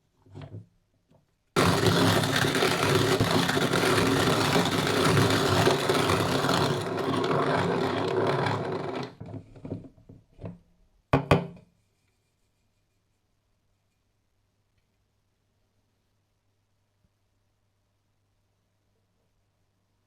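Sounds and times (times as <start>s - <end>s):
hand-cranked coffee grinder grinding: 1.6s - 9.4s.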